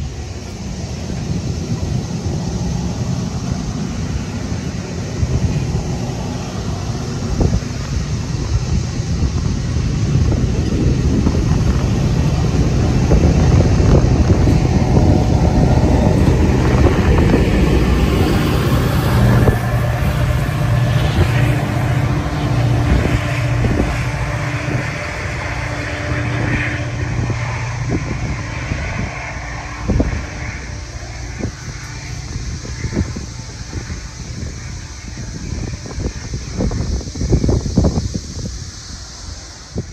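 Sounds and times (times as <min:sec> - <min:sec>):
train wheels clattering on rails: 0:00.0 - 0:28.1
diesel locomotive engine drone: 0:00.0 - 0:39.9.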